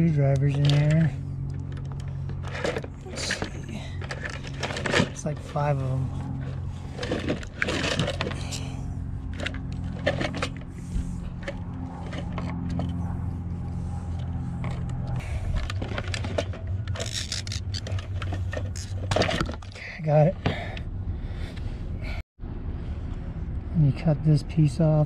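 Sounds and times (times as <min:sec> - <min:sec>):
steady low hum: 0:00.0 - 0:25.0
plastic parts clicking and scraping: 0:00.2 - 0:10.7, 0:11.3 - 0:13.0, 0:14.2 - 0:20.9.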